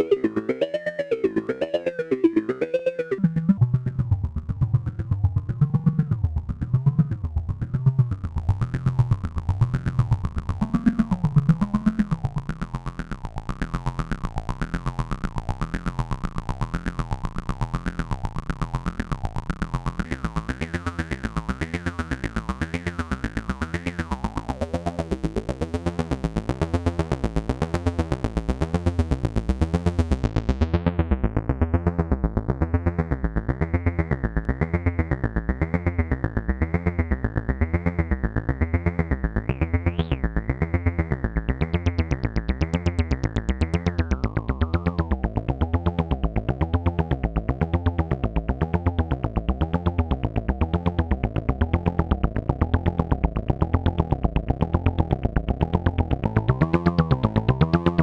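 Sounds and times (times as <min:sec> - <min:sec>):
synthesizer pulsing low note: 0:00.0 - 0:07.6, 0:49.2 - 0:58.0.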